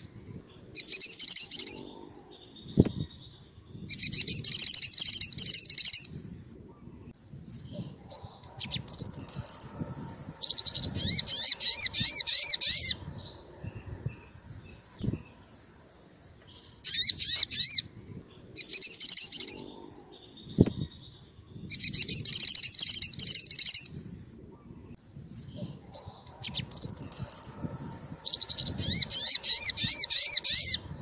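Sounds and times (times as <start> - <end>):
sunbird singing high chirps: 0.0 - 31.0.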